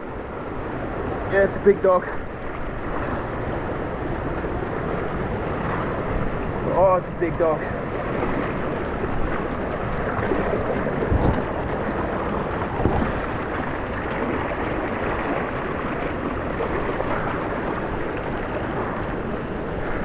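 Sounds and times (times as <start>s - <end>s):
creek water rushing over rocks: 0.1s - 20.0s
dull thumps: 11.0s - 11.7s, 12.6s - 13.3s.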